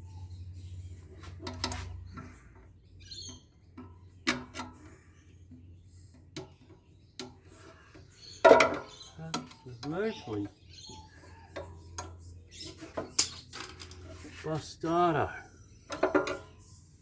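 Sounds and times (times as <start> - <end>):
metal parts and tools clicking: 11.6 - 14.1.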